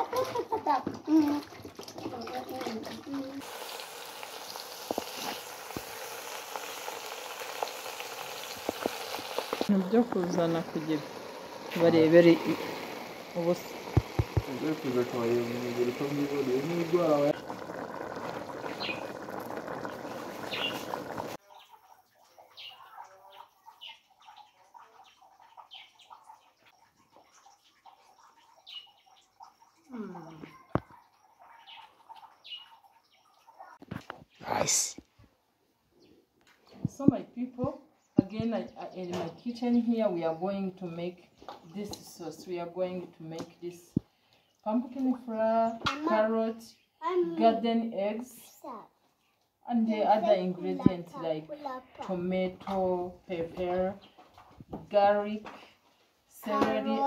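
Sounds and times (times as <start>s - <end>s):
vegetables sizzling in a pot: 2.1s - 21.4s, 56.3s - 57.0s
birds chirping: 7.6s - 34.7s, 35.9s - 40.5s.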